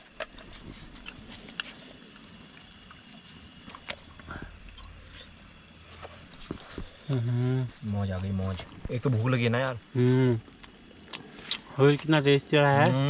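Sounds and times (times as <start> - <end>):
faint chewing: 0.0 - 9.2, 10.0 - 12.1.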